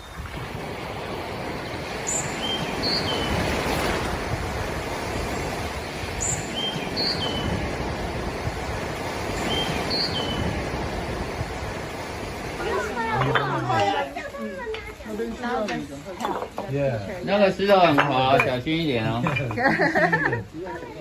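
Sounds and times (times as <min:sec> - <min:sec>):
ocean surf washing in: 0:00.0 - 0:14.6
high chirping bird call: 0:02.0 - 0:04.2.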